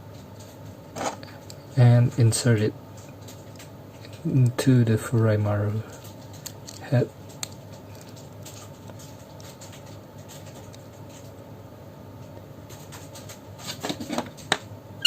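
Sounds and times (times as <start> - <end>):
steady low hum: 0.0 - 15.0
plastic parts clicking: 6.0 - 11.2.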